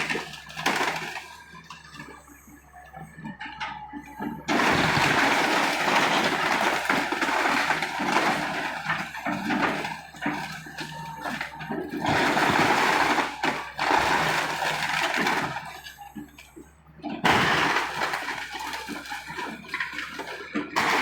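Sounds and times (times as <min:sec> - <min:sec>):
debris breaking and falling: 0:00.0 - 0:02.1, 0:04.2 - 0:16.3, 0:17.2 - 0:21.0
low engine hum: 0:01.2 - 0:05.5.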